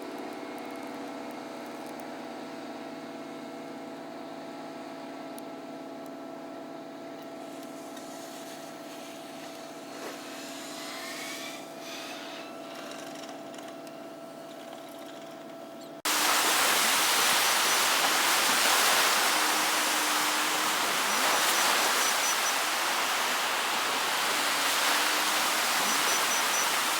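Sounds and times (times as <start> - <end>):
engine drone: 16.1 - 26.9
loud steady rushing noise: 16.1 - 26.9.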